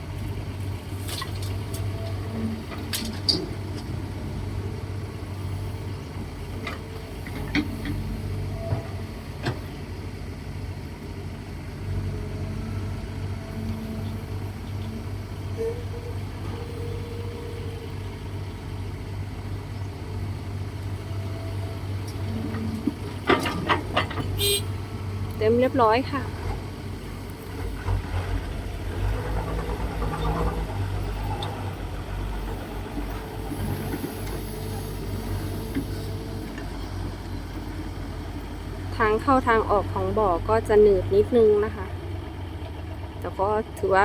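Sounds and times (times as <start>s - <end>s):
excavator diesel engine running: 0.0s - 44.0s
knocks and clanks: 22.4s - 24.4s.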